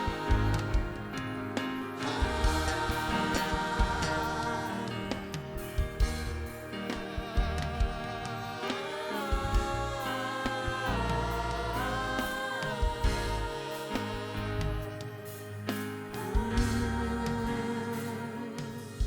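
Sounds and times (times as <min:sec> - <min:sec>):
drum hits: 0:00.0 - 0:08.3
gospel singing: 0:00.0 - 0:19.0.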